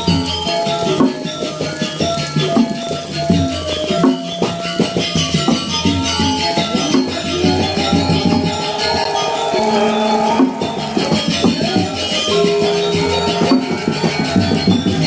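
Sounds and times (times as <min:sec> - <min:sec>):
gamelan playing: 0:00.0 - 0:15.0
cymbal clashes: 0:05.1 - 0:15.0.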